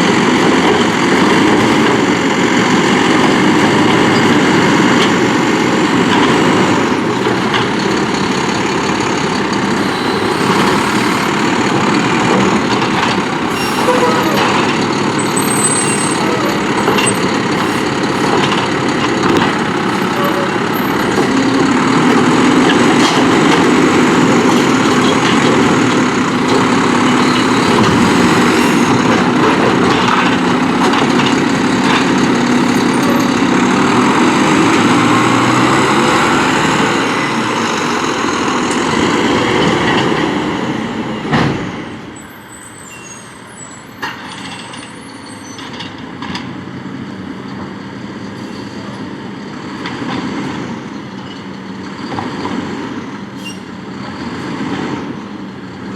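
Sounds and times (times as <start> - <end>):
diesel truck engine revving: 0.0 - 42.1.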